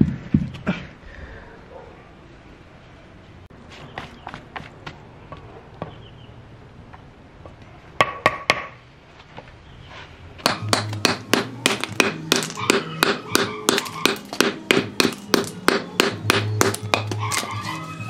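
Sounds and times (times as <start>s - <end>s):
hammer blows on wood: 10.4s - 17.2s.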